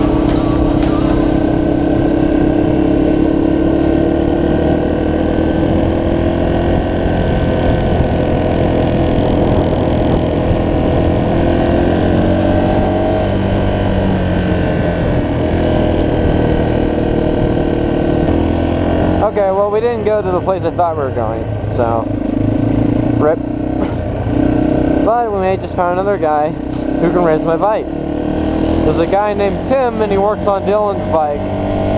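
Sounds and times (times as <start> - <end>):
dirt bike engine running: 0.0 - 1.5.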